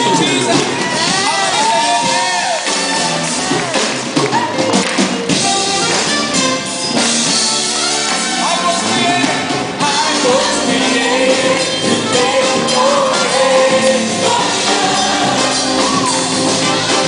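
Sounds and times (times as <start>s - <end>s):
drum kit: 0.0s - 17.0s
worship band music: 0.0s - 17.0s
voices singing: 8.6s - 17.0s.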